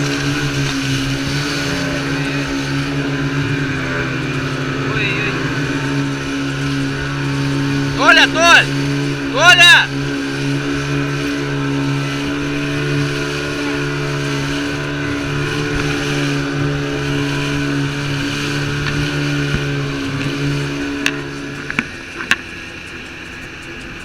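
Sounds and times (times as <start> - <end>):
outboard motor running: 0.0 - 24.0
sharp clicks: 20.2 - 24.0.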